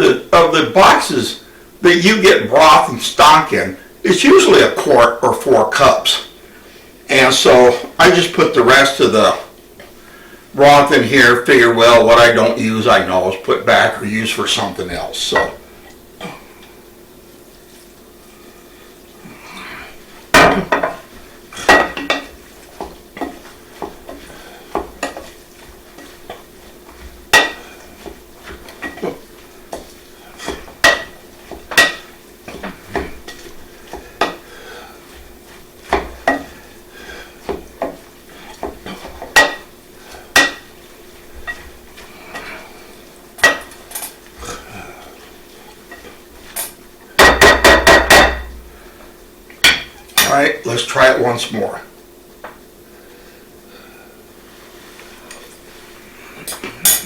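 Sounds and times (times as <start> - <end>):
faint steady hum: 0.0 - 57.0
utensil clinking against bowl: 21.6 - 26.5, 27.3 - 34.4, 35.8 - 36.6.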